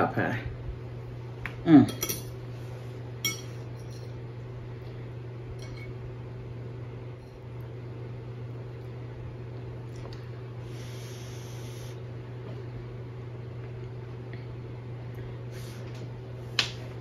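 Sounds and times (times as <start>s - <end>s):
steady low hum: 0.0s - 17.0s
tableware clinking: 1.9s - 2.4s, 3.2s - 4.2s, 5.6s - 6.0s.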